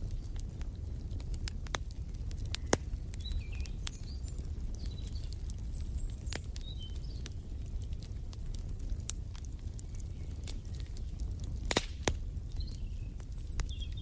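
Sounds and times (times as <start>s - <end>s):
wood fire crackling: 0.0s - 14.0s
birds chirping: 2.0s - 7.9s, 9.8s - 11.4s, 12.4s - 14.0s.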